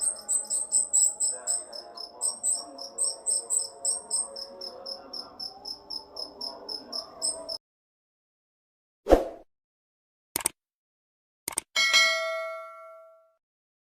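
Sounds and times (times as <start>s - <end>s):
bird chirping rapidly: 0.0s - 7.6s.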